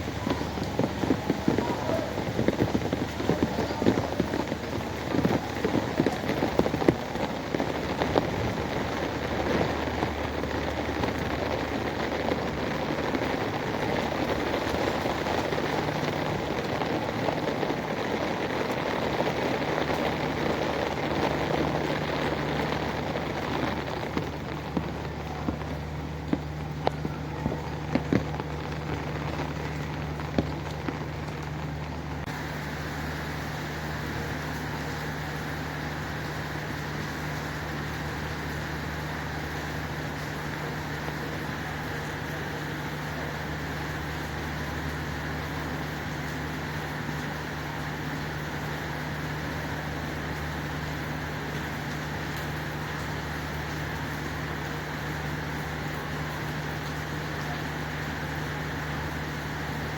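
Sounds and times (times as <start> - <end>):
rain drips and splashes: 0.0 - 59.9.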